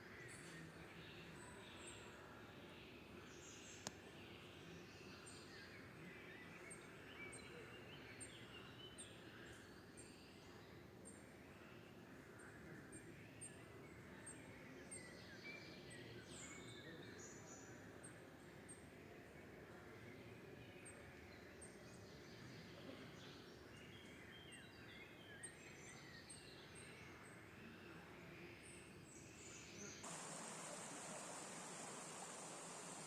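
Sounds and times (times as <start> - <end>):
soft steady hiss: 29.2 - 33.0.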